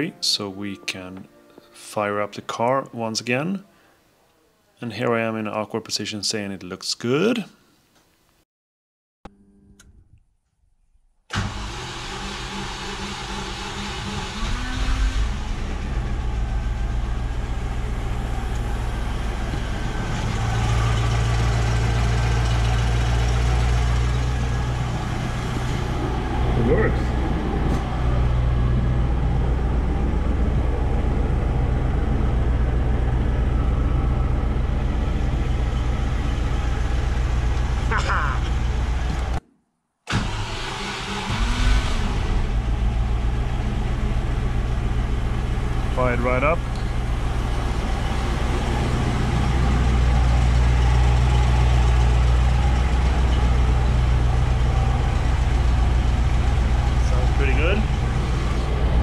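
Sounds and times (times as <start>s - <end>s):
car engine idling through exhaust: 11.4s - 39.4s, 40.2s - 59.0s.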